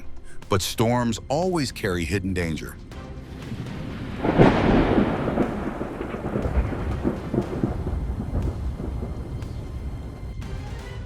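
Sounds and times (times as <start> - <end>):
rolling thunder rumble: 3.4 - 10.4
thunder crack: 3.5 - 10.2.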